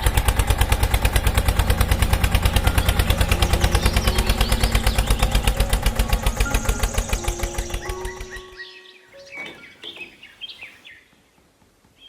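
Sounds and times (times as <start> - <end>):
small tractor engine chugging: 0.0 - 8.6.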